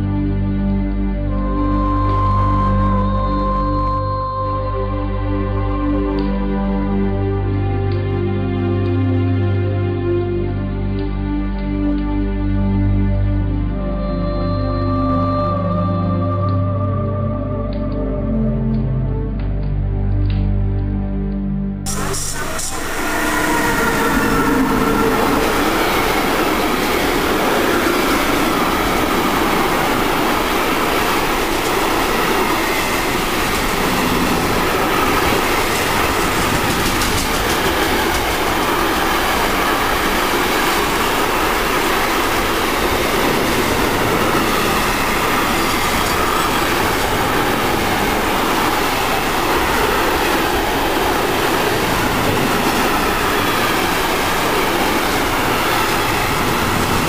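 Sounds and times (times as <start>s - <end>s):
train wheels rumbling and rattling: 21.9s - 57.0s.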